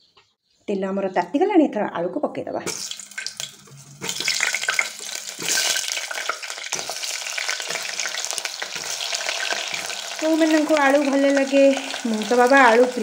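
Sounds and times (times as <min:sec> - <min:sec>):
potatoes frying in hot oil: 0:02.6 - 0:13.0.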